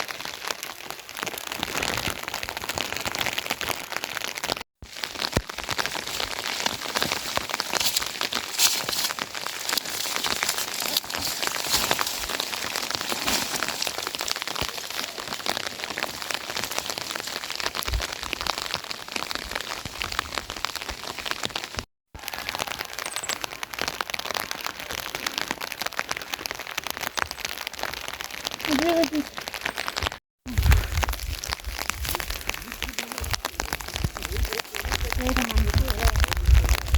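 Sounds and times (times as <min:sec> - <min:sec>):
steady rain: 0:00.0 - 0:36.9.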